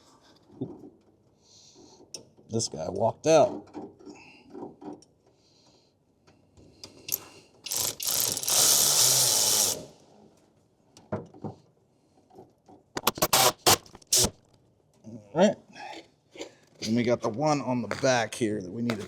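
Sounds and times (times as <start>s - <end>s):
power tool tightening a bolt: 7.1s - 10.0s, 13.0s - 14.4s
sharp clicks: 13.0s - 14.5s.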